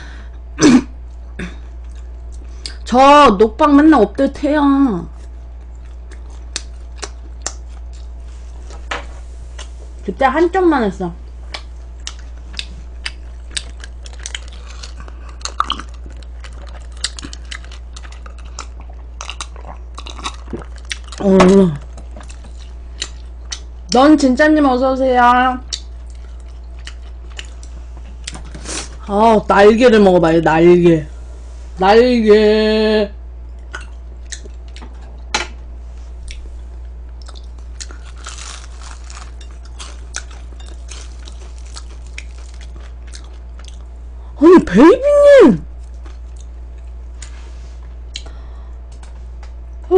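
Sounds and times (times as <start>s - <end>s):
steady low hum: 0.0s - 49.9s
crunchy chewing: 5.1s - 8.9s, 11.4s - 23.8s, 25.7s - 29.0s, 36.2s - 44.0s.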